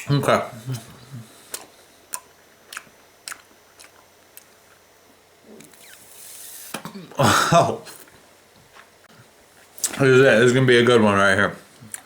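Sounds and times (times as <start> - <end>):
gum chewing wet smacks: 1.0 - 4.8.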